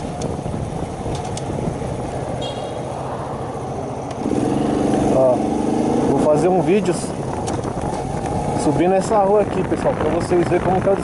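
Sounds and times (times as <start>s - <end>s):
wind buffeting microphone: 0.0s - 11.0s
small motorcycle engine: 3.6s - 9.0s.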